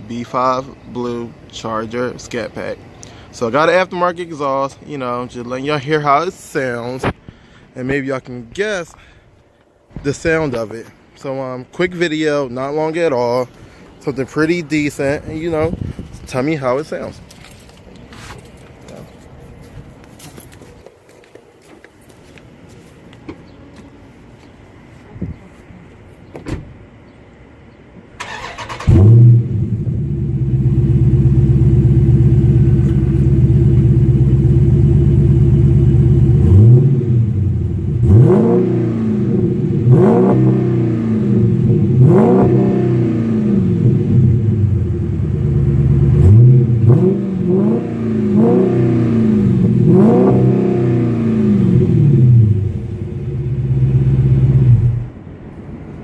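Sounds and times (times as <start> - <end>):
car engine idling: 28.2 - 38.3, 43.4 - 47.5, 51.4 - 55.2
engine revving: 28.2 - 55.1.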